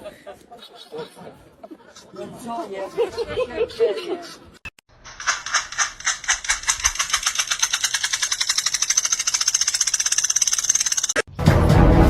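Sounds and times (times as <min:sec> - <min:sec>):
rapid clicking: 0:05.0 - 0:11.3.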